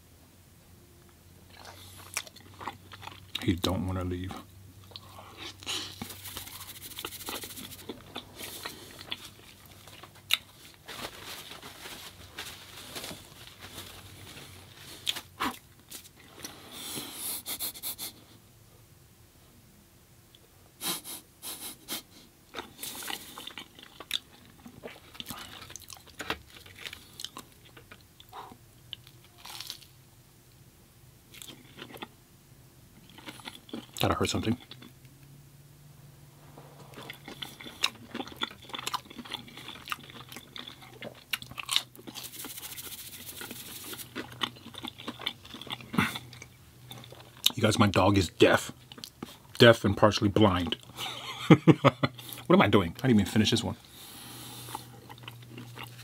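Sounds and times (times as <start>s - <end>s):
person chewing food: 1.4s - 3.5s, 4.3s - 11.2s, 11.8s - 18.1s, 22.5s - 29.9s, 31.3s - 32.2s, 32.9s - 35.1s, 36.4s - 47.6s, 48.7s - 49.6s, 53.9s - 56.0s.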